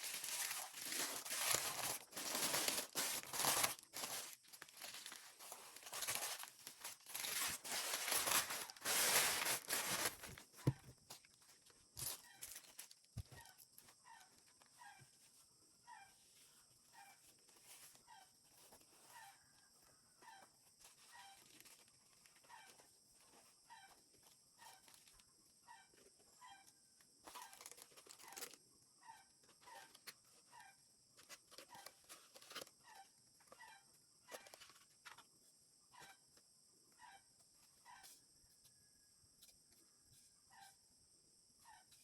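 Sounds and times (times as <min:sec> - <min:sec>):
rustling: 0:00.0 - 0:15.4.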